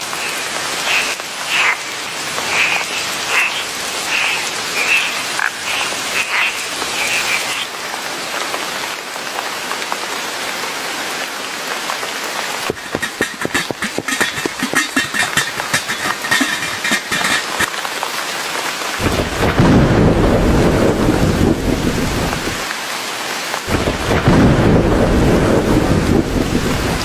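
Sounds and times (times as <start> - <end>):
frogs croaking: 0.0 - 7.8, 12.7 - 17.7
steady rain falling: 0.0 - 27.0
rapid rattling clatter: 12.7 - 17.8.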